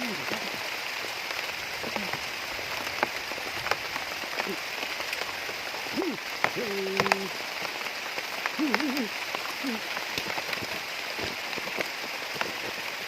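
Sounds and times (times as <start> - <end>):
raindrop splash ticks: 0.0 - 13.0
steady rain falling: 0.0 - 13.0.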